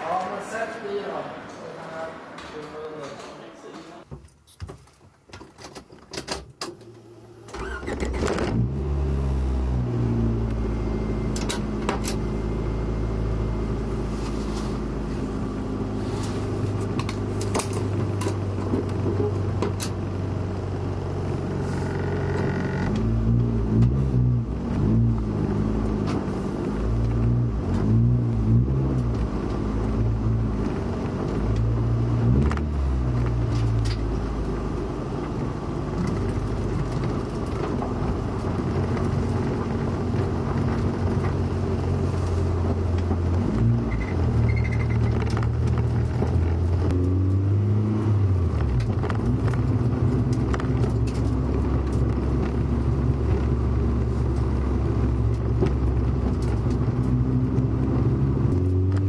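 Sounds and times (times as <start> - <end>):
car engine cranking and idling: 5.3 - 59.0
engine revs rising and falling: 8.2 - 11.3, 26.7 - 33.5, 46.2 - 48.8.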